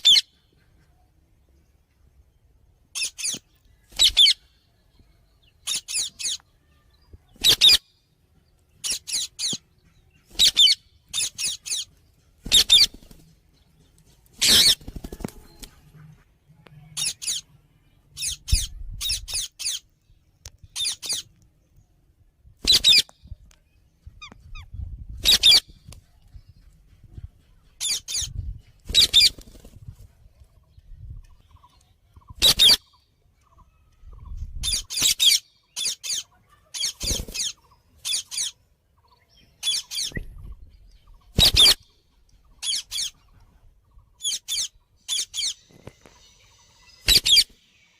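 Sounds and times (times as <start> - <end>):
parakeet screeching calls: 10.4 - 11.9.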